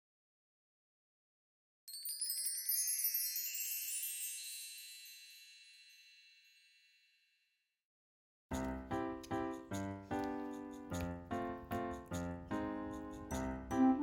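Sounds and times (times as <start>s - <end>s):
glittering bell-like chime: 1.9s - 7.6s.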